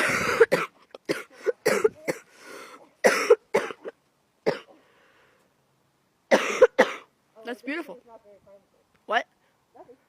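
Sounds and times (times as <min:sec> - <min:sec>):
person coughing: 0:00.0 - 0:02.3, 0:03.0 - 0:03.9, 0:06.3 - 0:07.1.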